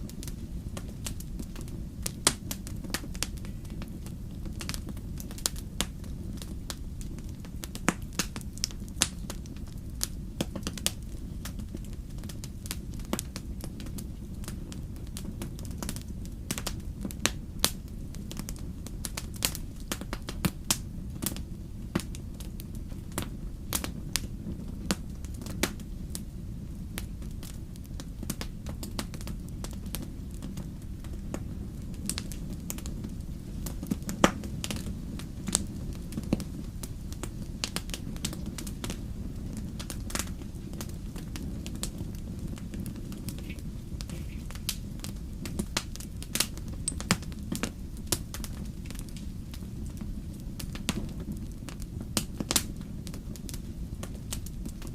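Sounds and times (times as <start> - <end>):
low rumble of flames: 0.0 - 54.9
wood fire crackling and popping: 0.0 - 54.9.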